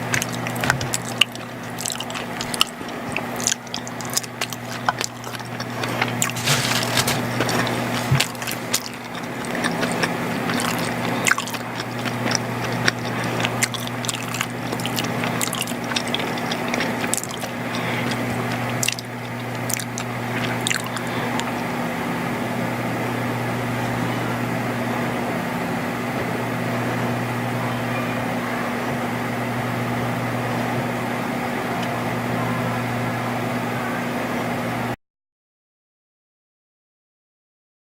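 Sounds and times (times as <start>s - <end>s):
mouth clicks and crackles: 0.0s - 21.6s
wet squishy chewing: 0.0s - 21.8s.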